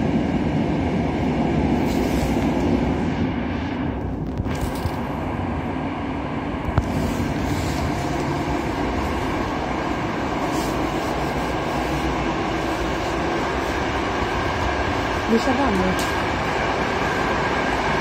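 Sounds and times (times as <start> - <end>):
passenger train running: 0.0 - 18.0.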